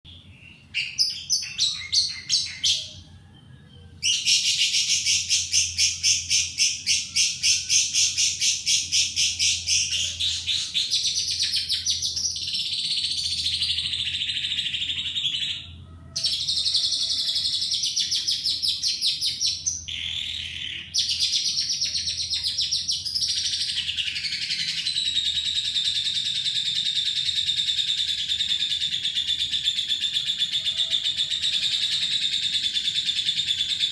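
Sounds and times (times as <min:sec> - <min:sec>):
lovebird chattering: 0:00.7 - 0:03.0.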